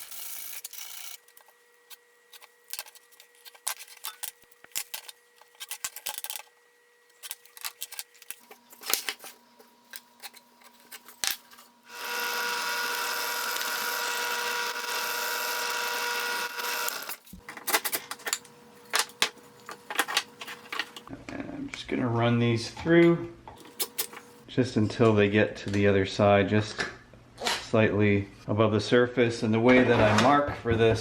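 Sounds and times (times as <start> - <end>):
clicks and knocks of handling: 1.2 - 11.6
power drill running: 11.8 - 17.4.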